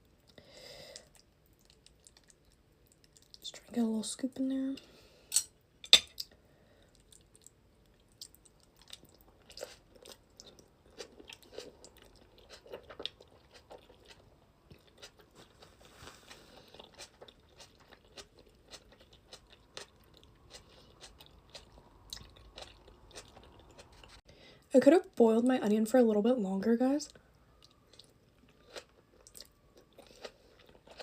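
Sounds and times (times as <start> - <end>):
person chewing food: 0.2 - 3.4, 6.1 - 24.2, 27.6 - 31.0.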